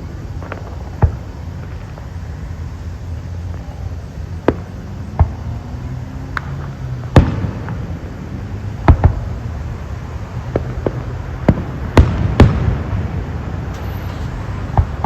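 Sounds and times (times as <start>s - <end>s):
low background rumble: 0.0s - 15.0s
fireworks bangs: 6.3s - 8.1s, 10.4s - 15.0s.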